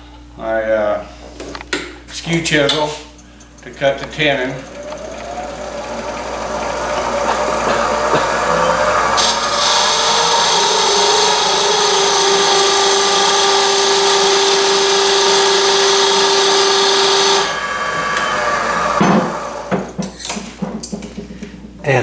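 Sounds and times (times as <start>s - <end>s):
chisel cutting wood on lathe: 3.6s - 20.0s.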